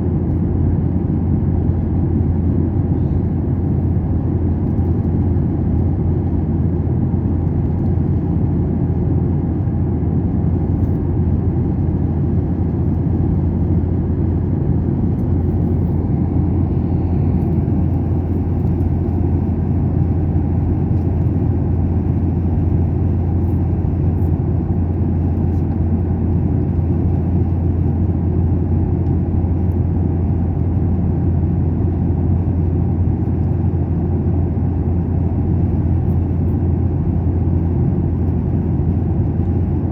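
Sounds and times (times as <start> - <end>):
airliner cabin roar: 0.0 - 39.9.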